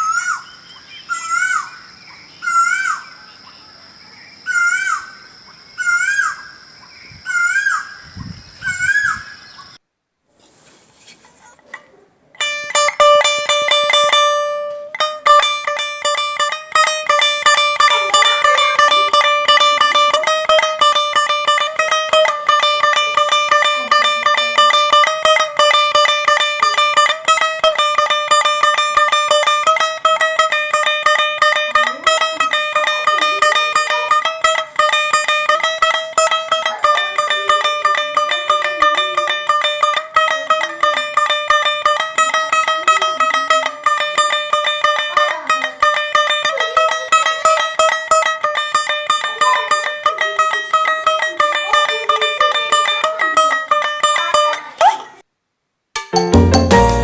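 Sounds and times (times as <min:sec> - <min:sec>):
plucked string instrument: 0:12.4 - 0:55.2, 0:56.0 - 0:57.0.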